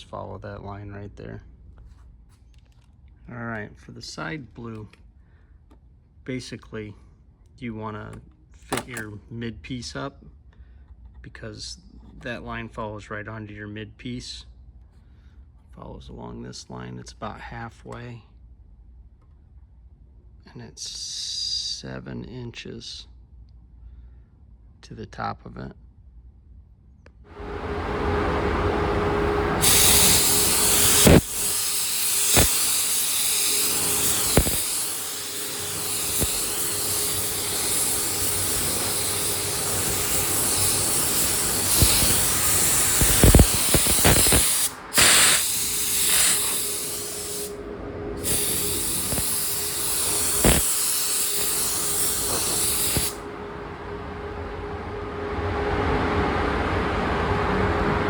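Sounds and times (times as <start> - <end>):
faint steady hum: 27.0 - 58.0
paint spray hiss: 29.6 - 53.3.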